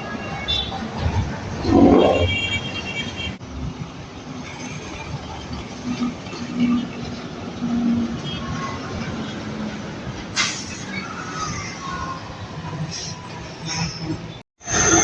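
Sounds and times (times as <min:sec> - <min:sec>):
heavy trucks passing: 0:00.0 - 0:11.4.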